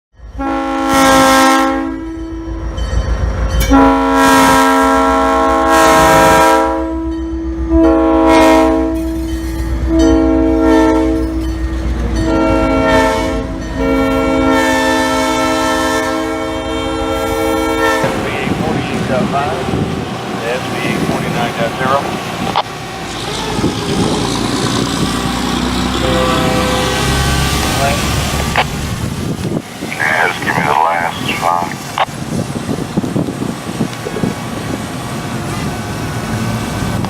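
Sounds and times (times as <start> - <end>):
train rumbling along track: 0.1 - 37.0
locomotive air horn blasts: 0.4 - 2.5, 3.6 - 9.2, 9.8 - 11.4, 12.2 - 19.3, 25.8 - 27.8.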